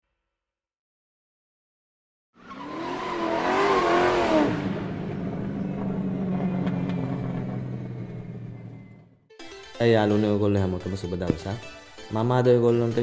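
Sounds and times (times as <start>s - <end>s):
vehicle rush with wavering squeal: 2.4s - 9.2s.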